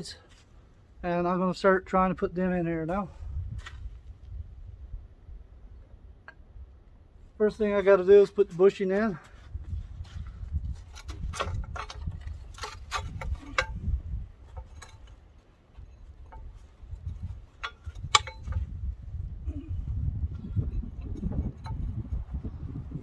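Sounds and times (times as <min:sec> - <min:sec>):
metallic clicks of steel hardware: 0:17.6 - 0:18.6.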